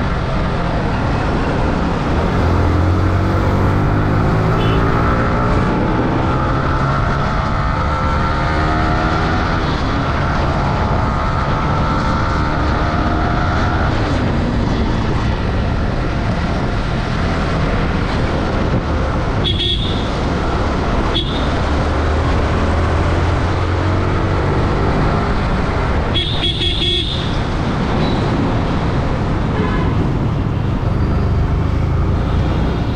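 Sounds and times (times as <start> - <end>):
wind and road noise: 0.0 - 32.9
motorcycle engine: 0.5 - 32.9.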